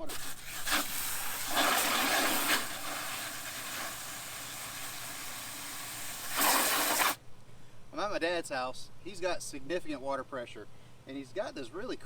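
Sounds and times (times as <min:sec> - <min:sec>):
hose water rushing into bucket: 0:00.0 - 0:07.2.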